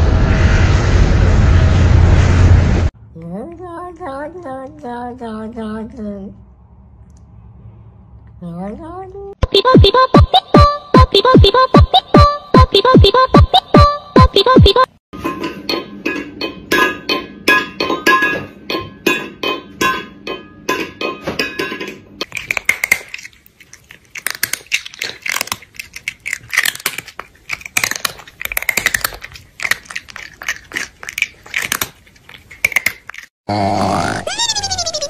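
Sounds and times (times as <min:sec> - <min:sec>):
crunchy chewing: 0:22.2 - 0:33.4.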